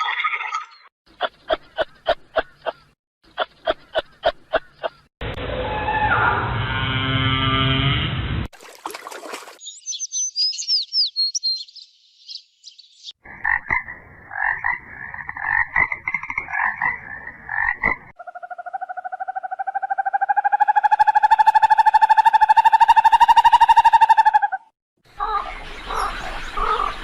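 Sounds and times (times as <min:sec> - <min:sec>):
pulsing animal calls: 0:18.1 - 0:27.0.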